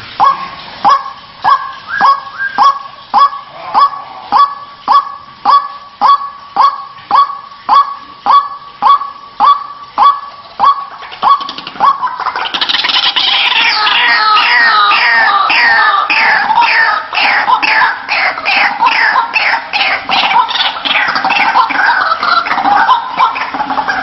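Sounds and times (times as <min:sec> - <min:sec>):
waterhen harsh repeated call: 0:00.0 - 0:24.0.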